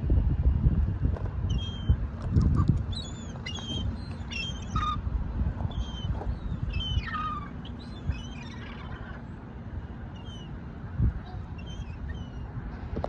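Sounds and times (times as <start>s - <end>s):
seagulls squawking: 1.5s - 5.1s, 5.7s - 9.4s, 10.1s - 10.6s, 11.2s - 12.6s.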